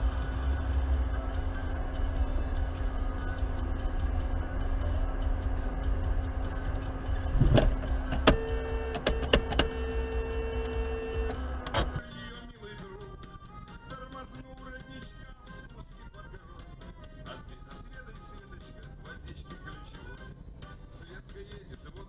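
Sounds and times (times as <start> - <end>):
car rumble from inside: 0.0 - 12.0
steady tone: 0.0 - 12.0.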